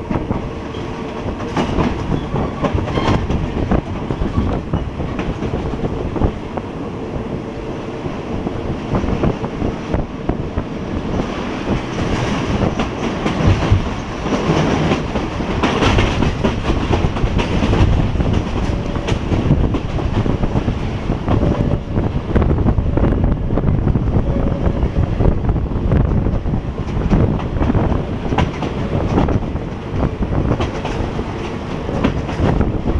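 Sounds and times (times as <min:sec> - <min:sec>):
wheels clacking over rail joints: 0:00.0 - 0:06.3, 0:11.1 - 0:21.7, 0:26.0 - 0:32.9
train rumbling: 0:00.0 - 0:32.9.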